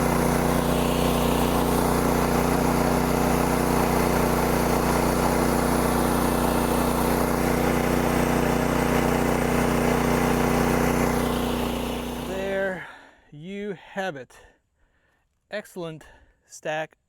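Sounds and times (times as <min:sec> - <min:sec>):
gasoline engine running: 0:00.0 - 0:12.8.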